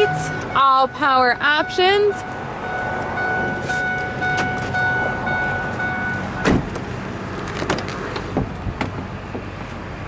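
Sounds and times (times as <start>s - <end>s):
electronic warning tone: 0.0s - 6.6s
sharp thump: 6.4s - 6.9s.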